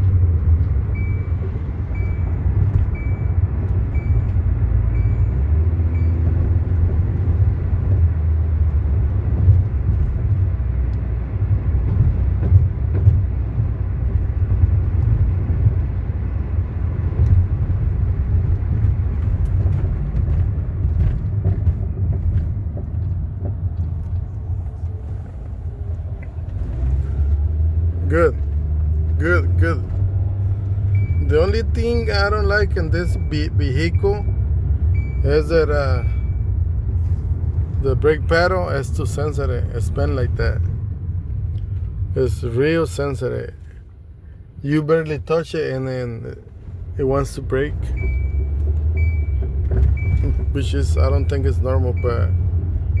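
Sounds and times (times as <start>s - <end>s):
road and drivetrain rumble: 0.0s - 53.0s
short high beeps: 47.9s - 49.4s.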